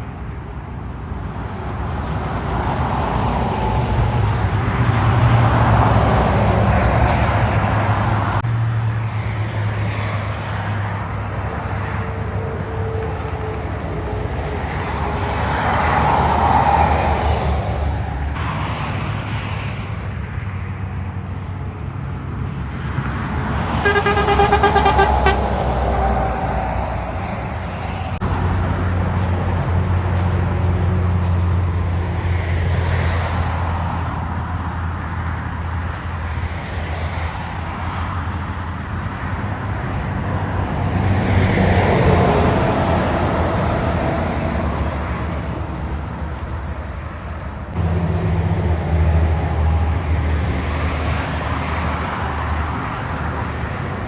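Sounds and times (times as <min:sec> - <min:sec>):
heavy trucks passing: 0:00.6 - 0:54.0
vehicle horn: 0:23.4 - 0:28.1.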